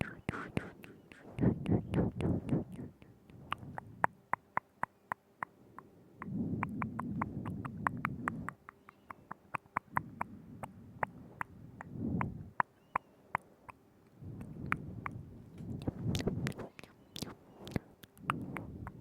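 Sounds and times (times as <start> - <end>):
wet tongue and lip clicks: 0.0 - 19.0.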